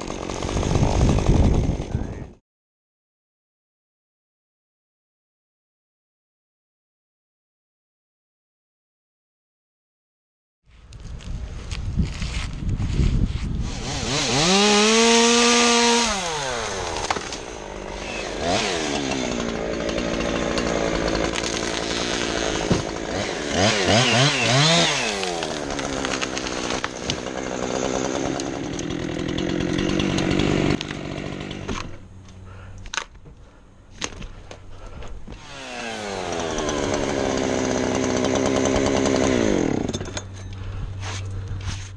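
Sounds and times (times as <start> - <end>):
chainsaw cutting wood: 0.0 - 2.3, 13.6 - 33.1, 34.0 - 41.9.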